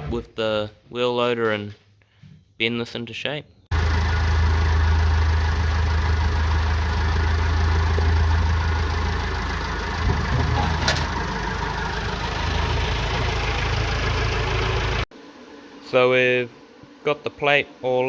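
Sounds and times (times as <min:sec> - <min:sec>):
wheel loader engine running: 0:03.7 - 0:15.1.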